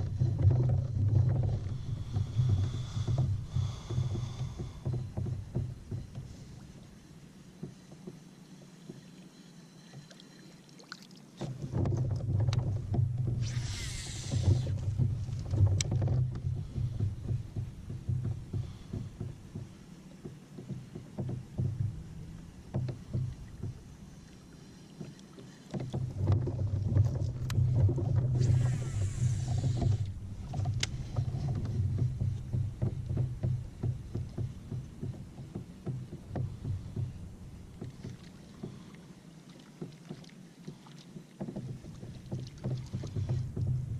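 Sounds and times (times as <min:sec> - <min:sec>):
low rumble: 0:00.0 - 0:06.7, 0:26.0 - 0:38.9
reel clicks: 0:13.3 - 0:16.4, 0:24.7 - 0:31.7
fishing reel spool whirring: 0:13.4 - 0:14.8, 0:28.4 - 0:30.1.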